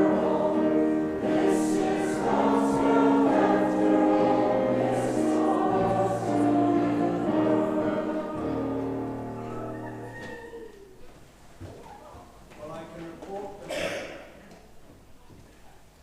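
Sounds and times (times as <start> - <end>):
congregation singing a hymn: 0.0 - 10.2
piano accompaniment: 0.0 - 10.6.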